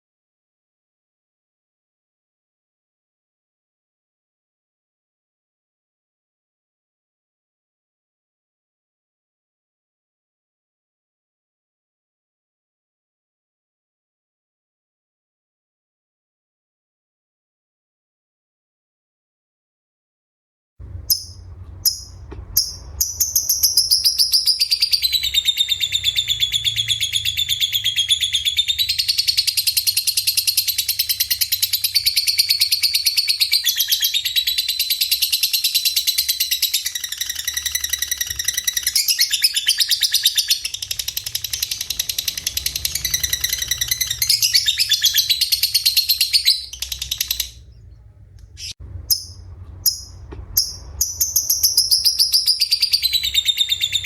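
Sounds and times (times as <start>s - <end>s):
songbird trilling and chirping: 21.0s - 54.0s.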